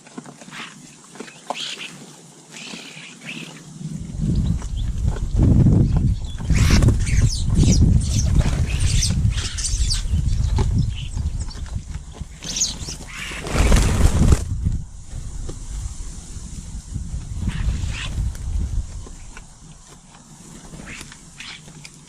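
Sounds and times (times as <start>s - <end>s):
birds chirping: 0.4s - 15.4s, 17.3s - 22.0s
wind buffeting microphone: 3.7s - 19.9s.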